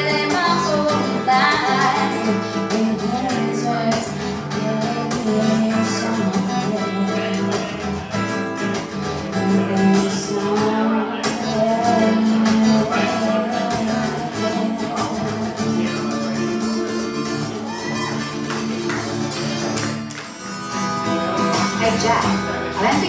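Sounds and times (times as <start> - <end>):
person singing: 0.0 - 8.2, 9.2 - 18.3
acoustic guitar strumming: 0.0 - 23.0.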